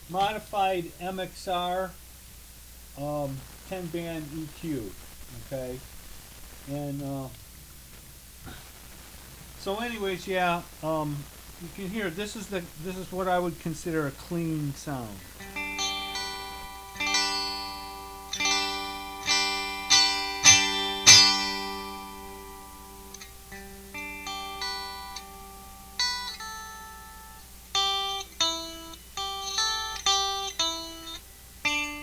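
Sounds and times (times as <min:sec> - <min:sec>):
electric ukulele strummed chords: 0:15.2 - 0:32.0
picked ukulele notes: 0:15.5 - 0:22.6.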